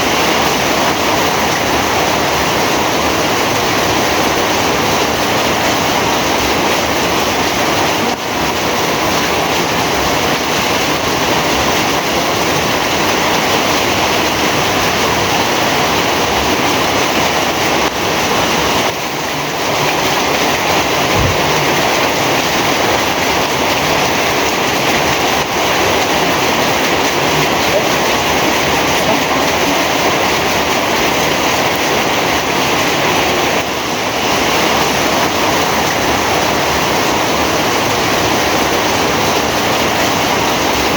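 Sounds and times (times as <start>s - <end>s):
heavy rain pouring: 0.0s - 40.9s
low thump: 21.1s - 22.0s.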